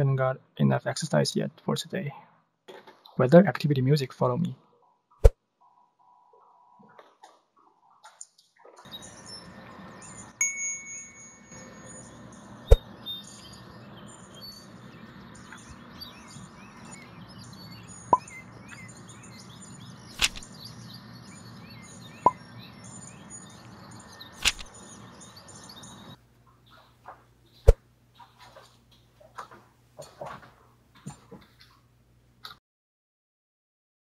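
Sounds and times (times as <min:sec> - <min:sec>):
small birds chirping: 0:07.6 - 0:10.4, 0:11.6 - 0:28.5
sharp clicks: 0:20.2 - 0:20.5, 0:24.4 - 0:24.8.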